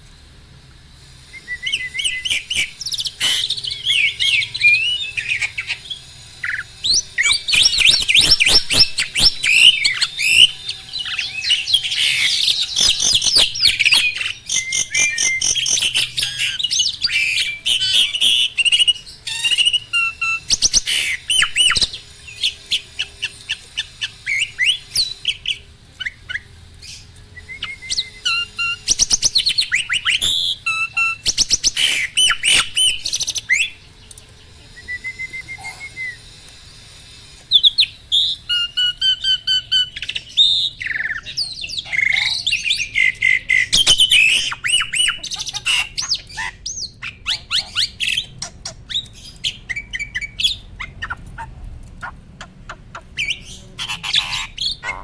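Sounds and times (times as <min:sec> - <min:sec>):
starling singing: 0:01.0 - 0:55.0.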